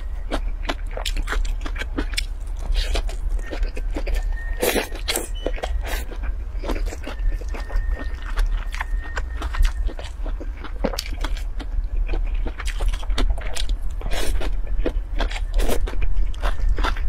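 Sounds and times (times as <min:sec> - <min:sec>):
low steady hum: 0:00.0 - 0:17.0
wet chewing: 0:00.0 - 0:17.0.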